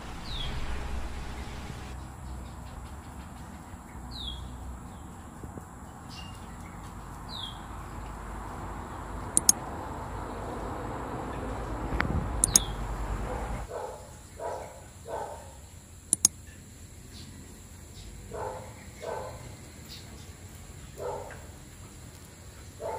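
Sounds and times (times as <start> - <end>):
high bird chirps: 0.0 - 1.9, 9.4 - 9.6, 12.4 - 12.8
low rumble: 0.0 - 2.9
sharp clicks: 9.3 - 9.6, 12.0 - 12.7, 16.1 - 16.4.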